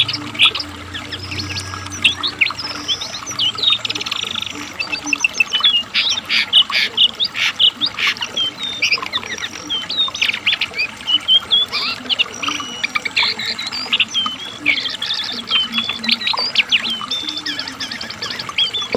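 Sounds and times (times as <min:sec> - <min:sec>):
bird singing: 0:00.0 - 0:18.9.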